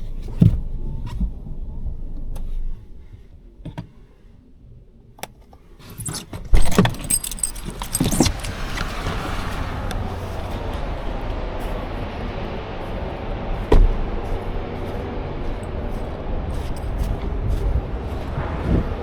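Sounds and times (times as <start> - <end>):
clicks and knocks inside car: 0.0 - 4.2, 5.2 - 9.2, 13.6 - 14.4
keys jangling: 5.8 - 9.2.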